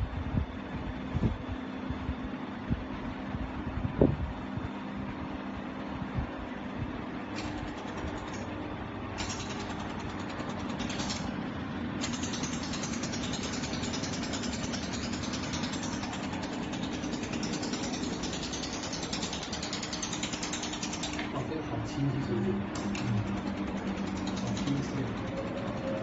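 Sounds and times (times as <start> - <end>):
machine low hum: 0.0 - 26.0
laser welder fast clicking: 7.4 - 11.4, 12.0 - 21.4, 22.7 - 26.0.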